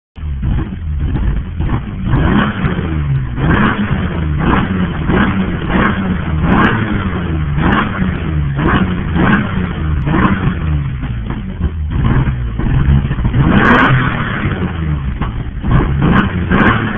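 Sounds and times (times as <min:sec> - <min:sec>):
car engine revving: 0:00.2 - 0:16.9.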